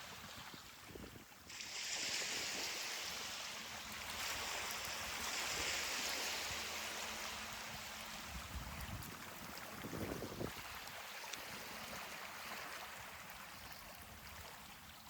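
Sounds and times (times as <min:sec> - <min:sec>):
ocean surf breaking: 0:01.5 - 0:08.4.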